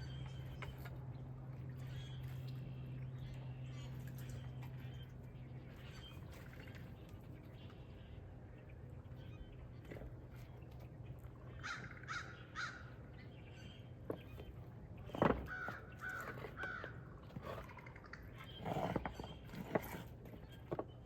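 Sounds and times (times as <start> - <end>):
crow cawing: 11.6 - 12.9, 15.5 - 17.0.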